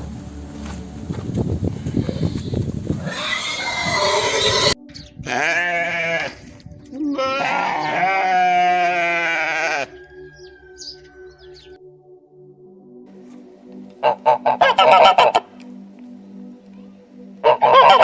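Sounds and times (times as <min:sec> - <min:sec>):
farm animal calling: 0:02.0 - 0:11.8, 0:14.0 - 0:15.6, 0:17.4 - 0:18.0.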